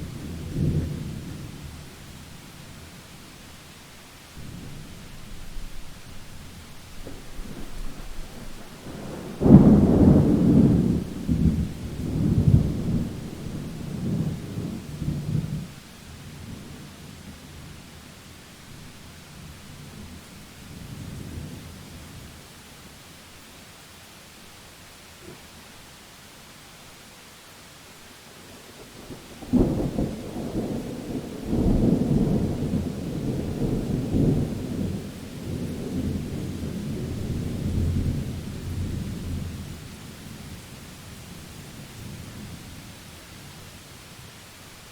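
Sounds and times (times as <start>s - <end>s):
steady hiss: 0.0s - 44.9s
thunder clap and rumble: 4.4s - 15.7s, 29.4s - 39.8s.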